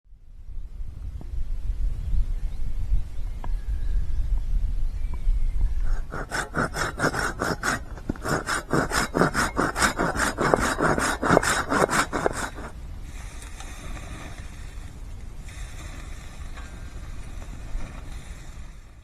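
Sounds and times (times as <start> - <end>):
hand saw cutting wood: 5.8 - 12.8.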